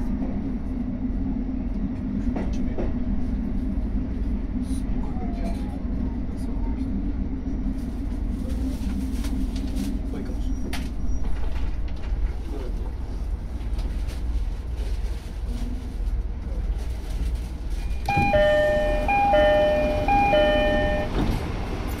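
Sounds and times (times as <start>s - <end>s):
diesel railcar rumble: 0.0s - 22.0s
two-tone electronic chime: 18.1s - 21.2s.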